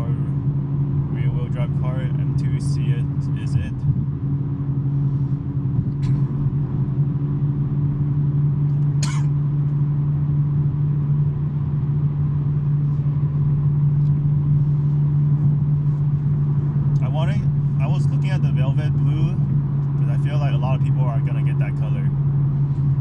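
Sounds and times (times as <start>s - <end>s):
car engine droning: 0.0s - 23.0s.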